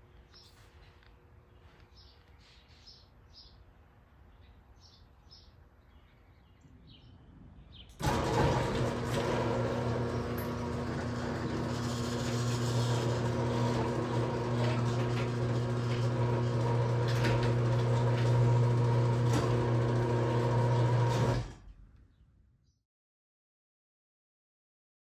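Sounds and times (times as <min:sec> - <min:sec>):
garage door opener motor hum: 0:08.0 - 0:21.9.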